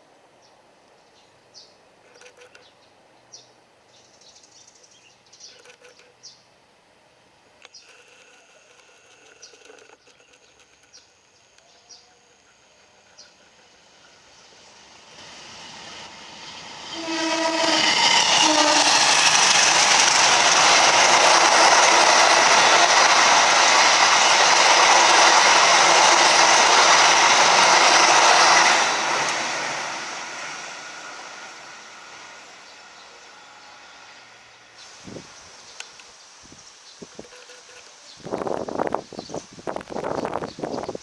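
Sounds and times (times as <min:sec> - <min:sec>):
train rolling past: 0:07.9 - 0:36.0
train horn blasts: 0:16.8 - 0:19.3, 0:32.6 - 0:34.6.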